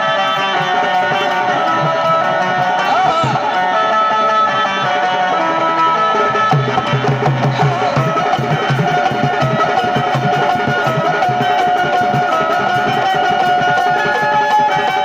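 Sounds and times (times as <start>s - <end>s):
held wavering melody: 0.0s - 15.0s
fast drum beat: 6.5s - 15.0s.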